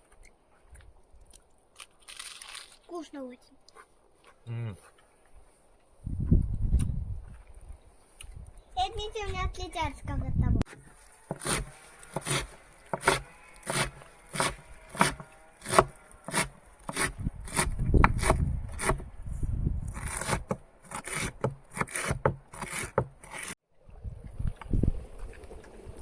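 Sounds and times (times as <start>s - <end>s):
chopping wood: 10.7s - 19.1s.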